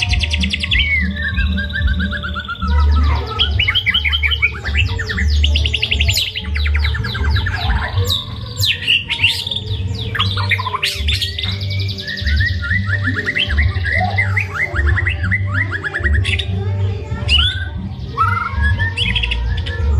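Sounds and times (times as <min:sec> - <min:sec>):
bird singing fast trills: 0:00.0 - 0:19.9.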